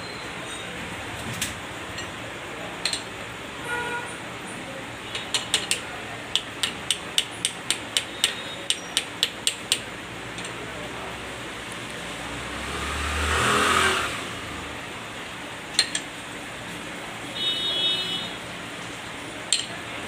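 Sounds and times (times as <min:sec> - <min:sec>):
mechanical background noise: 0:00.0 - 0:20.0.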